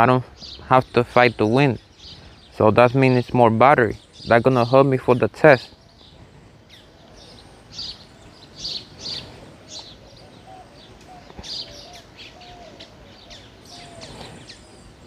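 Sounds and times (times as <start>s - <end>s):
birds chirping: 0.0s - 15.0s
faint outdoor background noise: 0.0s - 15.0s.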